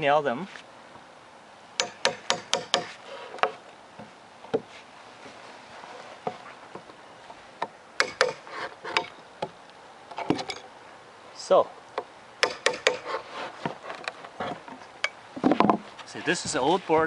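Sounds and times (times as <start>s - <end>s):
hammer knocking on wood: 1.8s - 4.7s.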